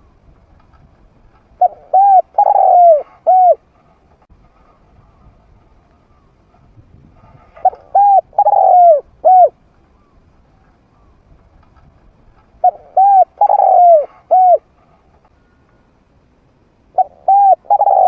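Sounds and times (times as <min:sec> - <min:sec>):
dove cooing: 0:01.6 - 0:03.6, 0:07.5 - 0:10.2, 0:12.6 - 0:14.7, 0:16.9 - 0:18.0.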